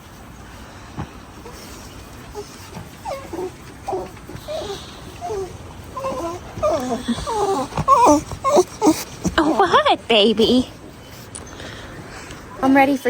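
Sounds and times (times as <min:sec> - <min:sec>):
small dog whining: 0:01.4 - 0:10.8.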